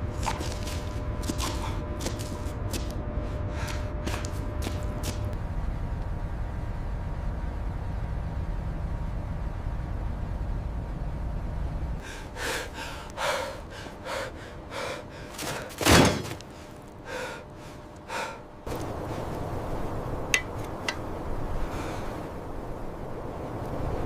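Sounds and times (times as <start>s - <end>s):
steady rushing noise: 16.4s - 24.0s.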